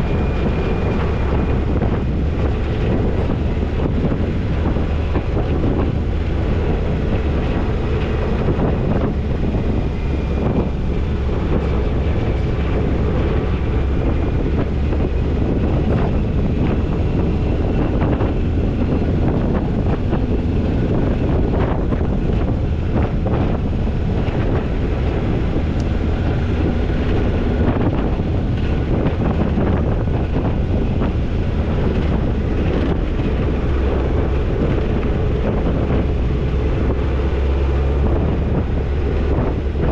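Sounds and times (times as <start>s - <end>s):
car engine and road noise: 0.0s - 39.9s
wind buffeting microphone: 0.0s - 39.9s.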